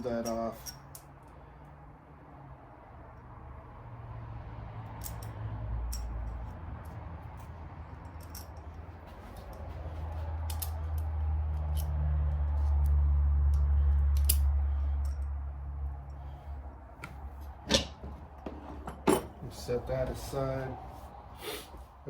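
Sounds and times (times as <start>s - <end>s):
metal tools clicking and clinking: 0.0s - 1.1s, 5.0s - 6.9s, 7.9s - 9.8s, 10.4s - 12.0s, 12.8s - 15.3s.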